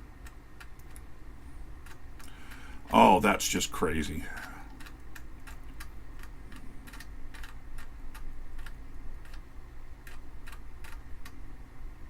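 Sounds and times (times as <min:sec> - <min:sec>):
floppy drive hum: 0:00.0 - 0:12.0
floppy drive head clicking: 0:04.4 - 0:11.4.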